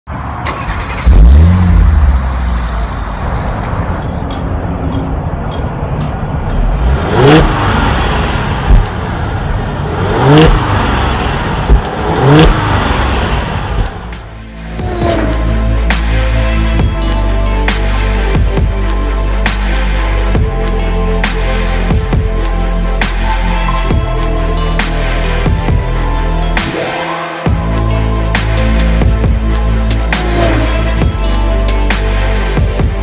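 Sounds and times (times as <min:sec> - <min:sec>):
car engine starting and idling: 0:00.2 - 0:24.8
car engine revving: 0:00.4 - 0:04.0, 0:06.7 - 0:16.9, 0:27.7 - 0:32.4.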